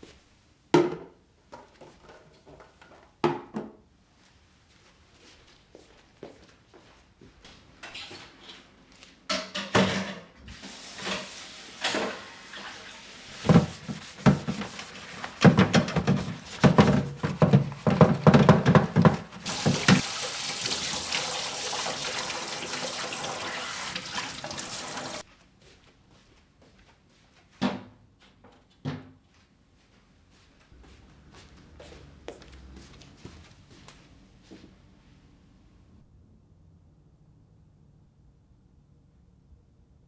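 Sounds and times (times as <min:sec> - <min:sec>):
knocks and clatter at sink: 0:09.3 - 0:10.3, 0:13.4 - 0:21.0
faucet running: 0:19.4 - 0:25.2.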